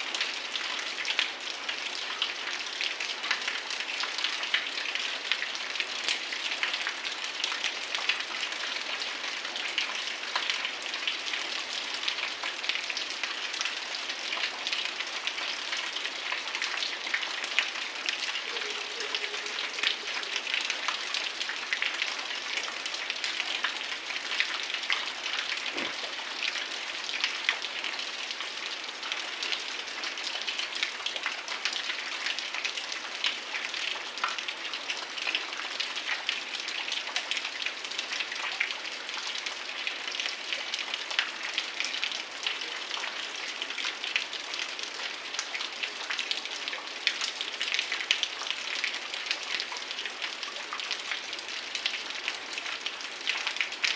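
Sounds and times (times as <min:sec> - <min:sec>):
heavy rain falling: 0:09.5 - 0:38.2.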